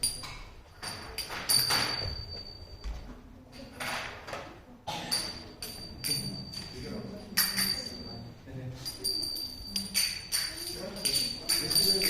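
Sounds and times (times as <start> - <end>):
small hand cymbals clinking: 5.1 - 12.0.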